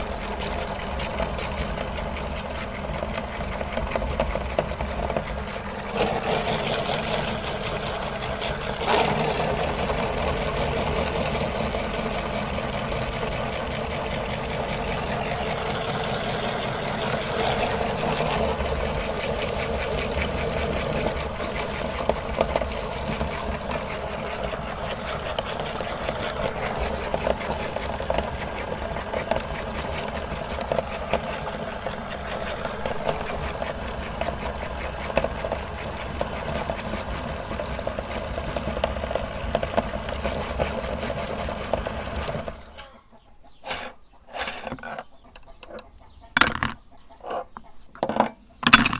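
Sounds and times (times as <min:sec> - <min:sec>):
meat grinder motor running: 0:00.0 - 0:42.9.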